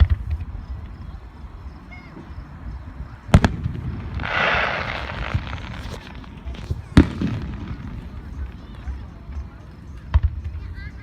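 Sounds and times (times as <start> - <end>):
firework bang: 3.3 - 8.4
hissing crackle: 3.3 - 9.0.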